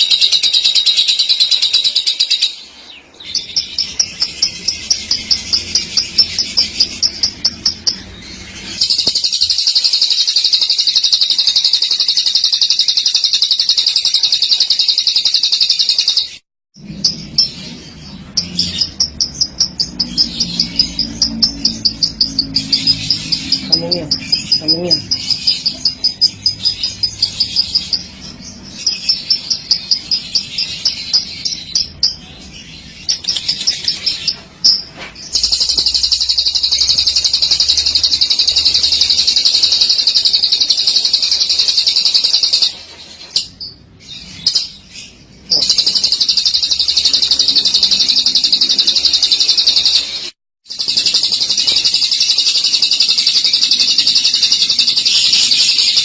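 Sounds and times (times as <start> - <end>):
lovebird chattering trill: 0.0 - 16.4, 18.3 - 56.0.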